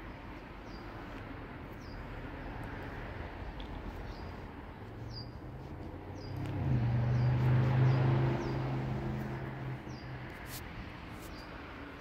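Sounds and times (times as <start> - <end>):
low engine hum: 0.1 - 12.0
small bird high chirps: 5.0 - 5.4.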